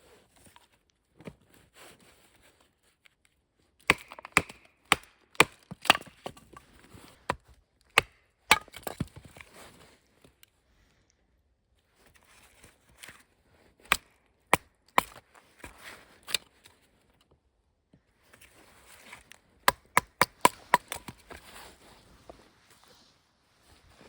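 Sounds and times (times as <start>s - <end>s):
blade chopping wood: 3.8s - 6.6s, 7.3s - 9.5s, 13.8s - 16.4s, 19.6s - 21.4s.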